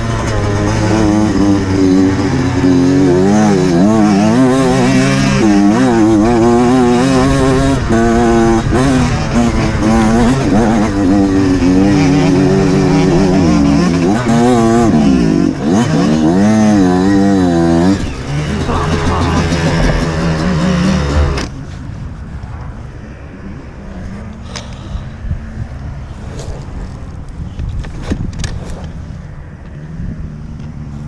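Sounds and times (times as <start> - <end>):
dirt bike engine revving: 0.0 - 21.6.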